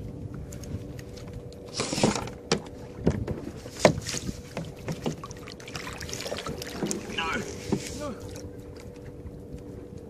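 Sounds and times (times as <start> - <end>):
water splashing: 1.7 - 8.7.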